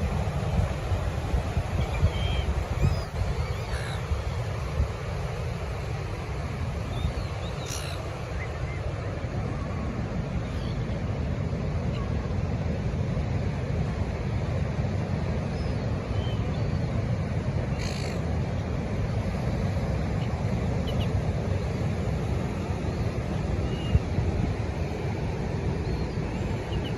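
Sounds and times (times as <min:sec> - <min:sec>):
wind buffeting microphone: 0:00.0 - 0:05.7
bird calls: 0:01.8 - 0:04.4, 0:06.9 - 0:08.8, 0:17.7 - 0:18.2, 0:25.8 - 0:26.9.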